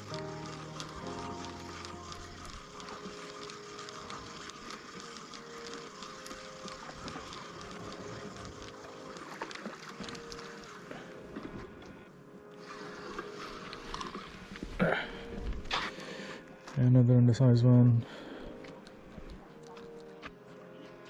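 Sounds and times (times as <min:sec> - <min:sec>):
fishing reel clicking: 0:00.0 - 0:10.8.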